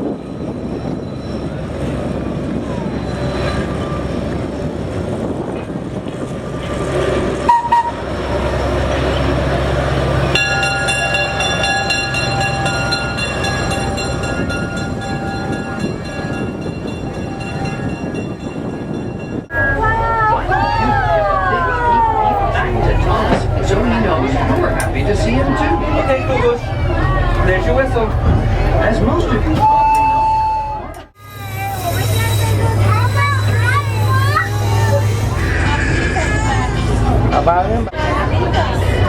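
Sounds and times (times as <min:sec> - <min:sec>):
train rumbling on track: 0:00.0 - 0:39.0
train whistle: 0:07.4 - 0:08.0, 0:29.6 - 0:33.6.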